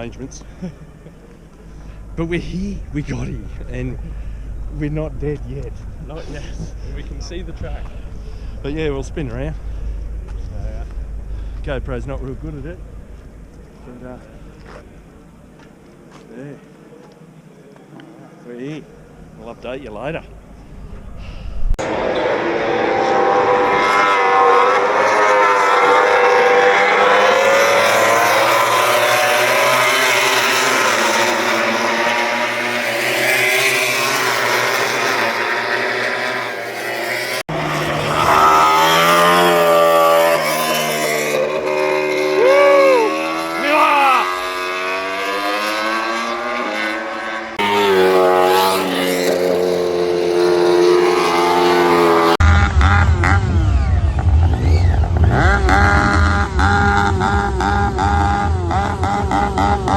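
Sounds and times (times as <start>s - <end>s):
race motorcycle engines revving: 21.8s - 59.9s.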